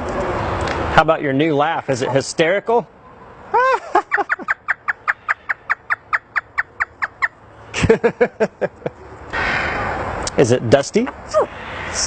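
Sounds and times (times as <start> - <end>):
parrot mimicking laughter: 3.5 - 7.2.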